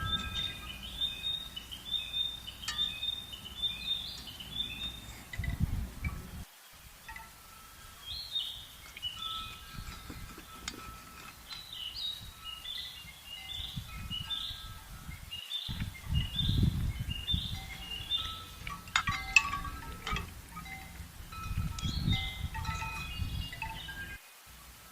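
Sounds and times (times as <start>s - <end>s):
bird calling: 0.0s - 6.4s, 7.1s - 24.2s
low rumbling: 0.0s - 6.5s, 15.7s - 24.2s.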